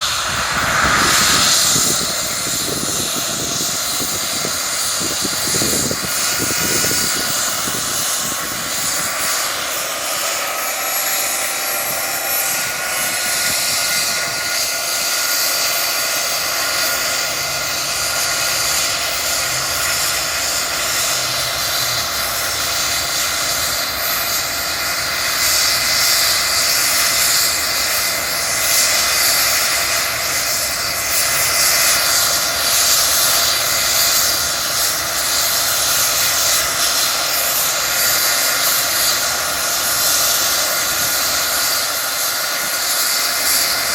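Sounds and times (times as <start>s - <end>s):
engine and rotor roar: 0.0s - 43.9s
helicopter turbine whine: 0.0s - 43.9s.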